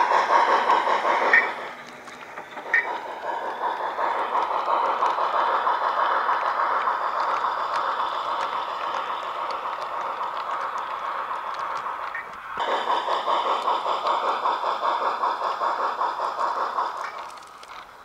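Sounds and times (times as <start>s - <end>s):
model train running: 0.0s - 18.0s
faint clicks: 1.2s - 12.6s, 13.6s - 18.0s.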